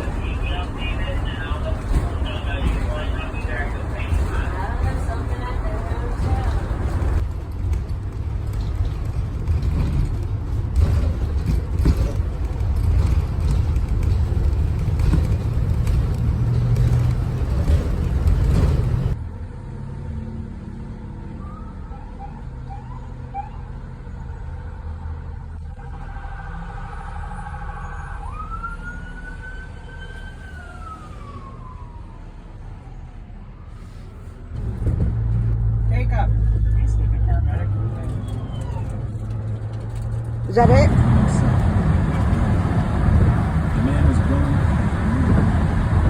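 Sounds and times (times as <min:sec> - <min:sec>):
emergency vehicle siren: 0:00.0 - 0:07.2, 0:21.2 - 0:35.1, 0:35.8 - 0:39.4
low vehicle rumble: 0:00.0 - 0:46.0.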